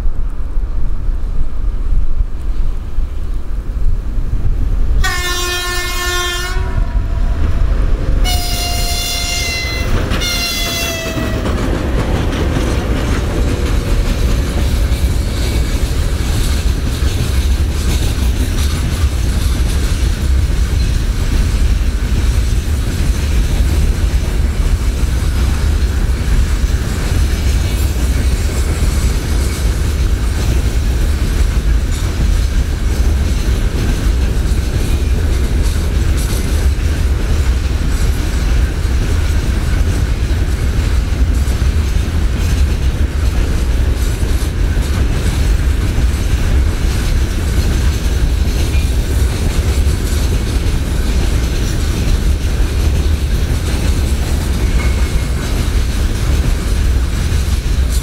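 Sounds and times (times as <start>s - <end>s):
freight train wheels clattering: 4.5s - 58.0s
locomotive horn blasts: 5.0s - 7.3s, 8.2s - 11.5s.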